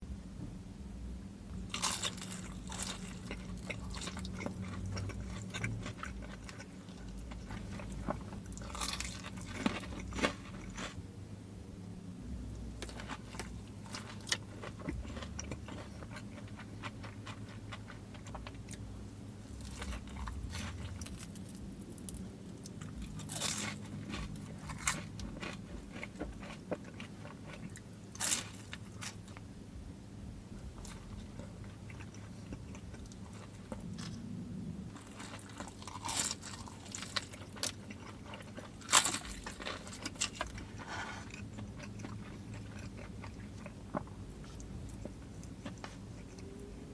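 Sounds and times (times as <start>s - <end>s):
steady low hum: 0.0s - 46.9s
crunching bites of fried chicken: 1.6s - 11.0s, 19.5s - 29.4s, 35.0s - 46.5s
chewing: 1.7s - 11.0s, 12.6s - 29.4s, 30.6s - 34.3s, 34.9s - 46.9s.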